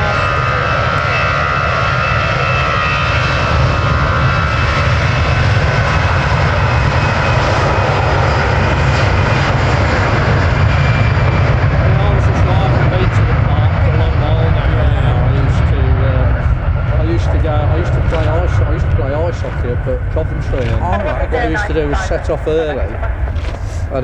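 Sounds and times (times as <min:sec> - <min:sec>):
jet engines roaring with whine: 0:00.0 - 0:24.0.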